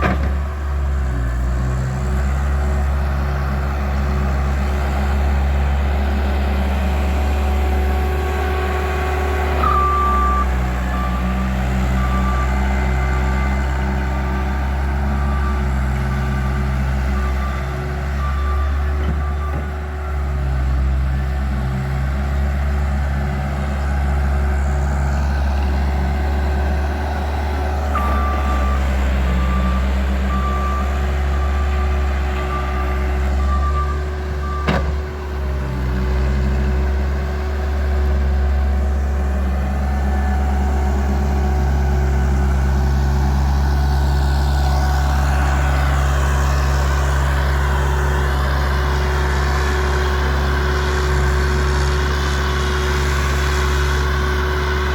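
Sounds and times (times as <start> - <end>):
diesel engine running: 0.0 - 54.9
reversing alarm beeping: 7.9 - 20.8, 25.9 - 36.6.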